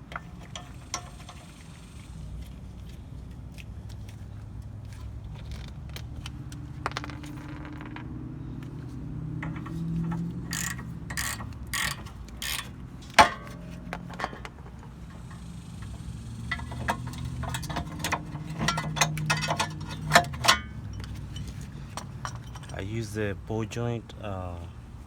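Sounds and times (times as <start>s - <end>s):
metal tools knocking: 0.0s - 1.7s, 6.7s - 8.6s, 9.4s - 23.2s
ratchet wrench clicking: 9.4s - 13.6s, 14.9s - 22.8s.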